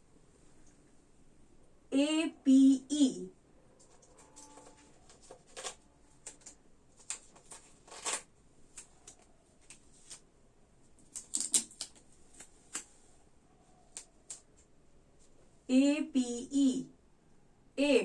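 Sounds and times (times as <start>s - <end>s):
rustles and taps: 10.9s - 12.9s.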